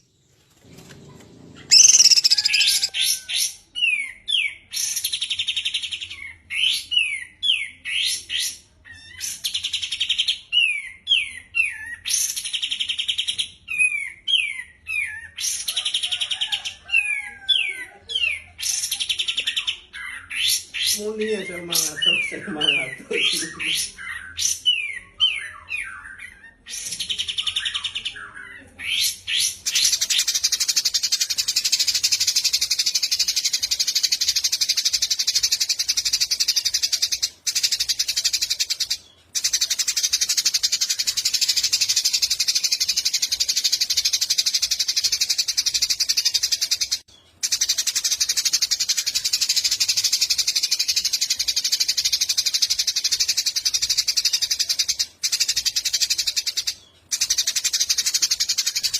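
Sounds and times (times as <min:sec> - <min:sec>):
songbird singing: 0:00.0 - 0:08.3, 0:08.9 - 0:58.9.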